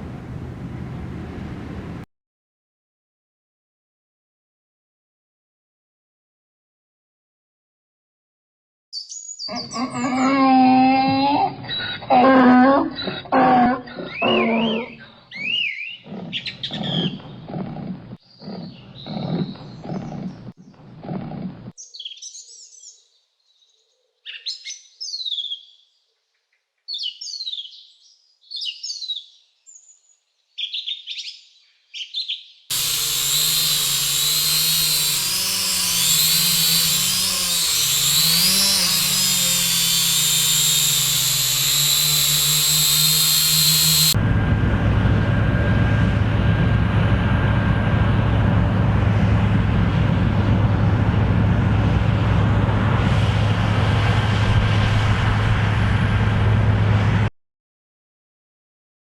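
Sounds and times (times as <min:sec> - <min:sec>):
bird calls chirping: 0:14.1 - 0:17.5
engine-like drone: 0:32.7 - 0:57.3.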